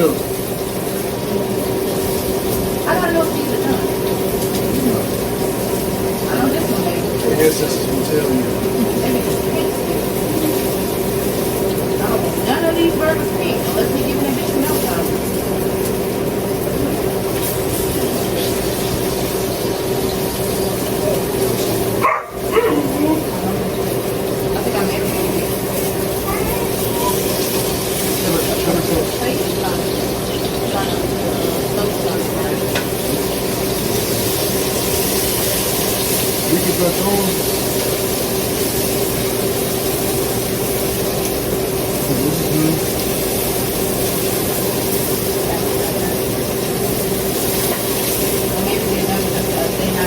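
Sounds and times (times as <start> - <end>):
fan whooshing: 0.0 - 50.0
low motor hum: 0.0 - 50.0.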